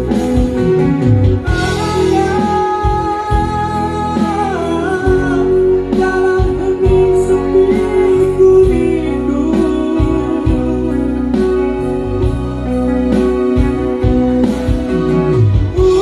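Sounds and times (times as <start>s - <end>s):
instrumental backing with low beat: 0.0s - 16.0s
person singing long notes: 1.4s - 13.9s.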